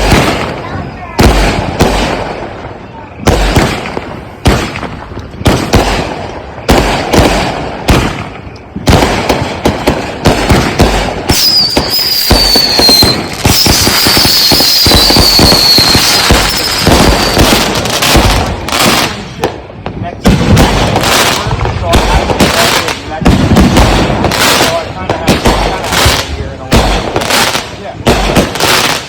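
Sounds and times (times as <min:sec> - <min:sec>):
firework booms: 0:00.0 - 0:29.0
firework crackle: 0:00.0 - 0:29.0
falling whistles: 0:11.3 - 0:17.5.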